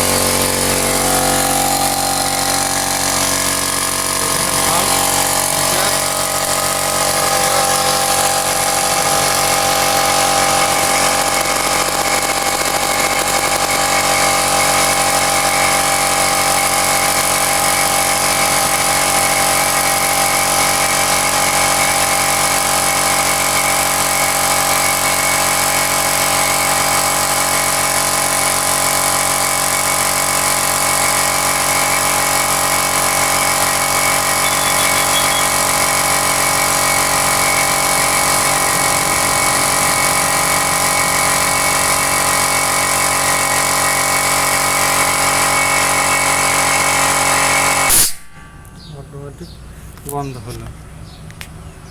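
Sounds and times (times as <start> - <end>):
electric motor and pump running: 0.0 - 48.4.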